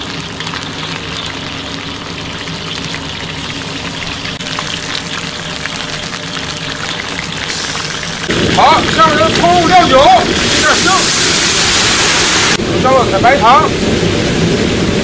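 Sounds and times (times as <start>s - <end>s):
food sizzling in hot oil: 0.0s - 15.0s
oil crackling: 0.0s - 15.0s.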